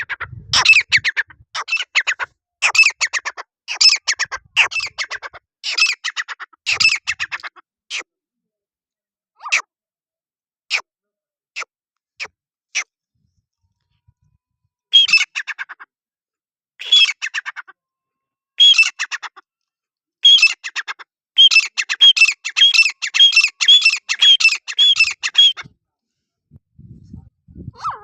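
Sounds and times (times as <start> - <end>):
francolin calling: 18.6 - 19.2, 21.4 - 25.7.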